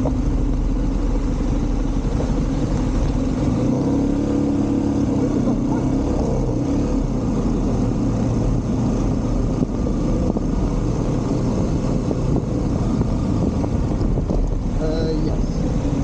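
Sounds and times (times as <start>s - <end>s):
motorcycle engine drone: 0.0s - 16.0s
road and wind noise: 0.0s - 16.0s.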